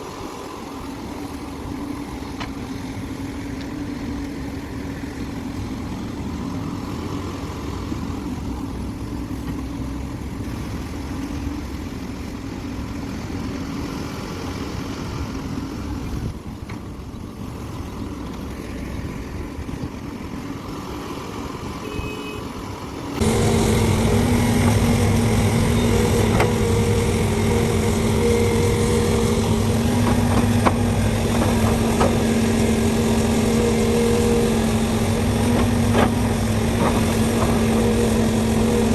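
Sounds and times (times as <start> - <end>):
heavy diesel engines running: 23.2 - 38.9.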